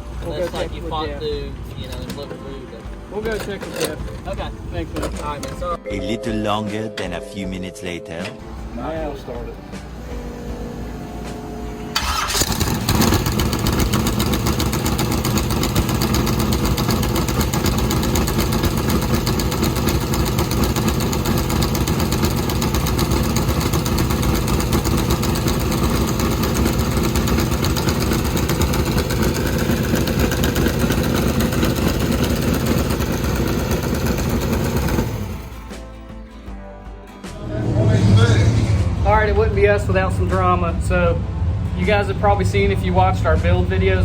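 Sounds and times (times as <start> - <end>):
car engine starting and idling: 0.0 - 2.6, 3.2 - 5.8, 8.4 - 35.8, 37.3 - 44.0.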